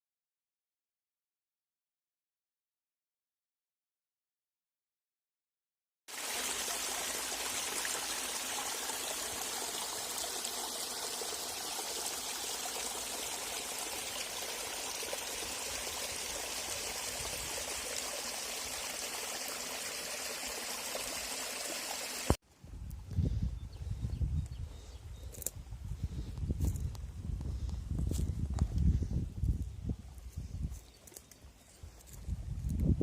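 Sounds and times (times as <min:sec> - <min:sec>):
running water: 0:06.1 - 0:22.4.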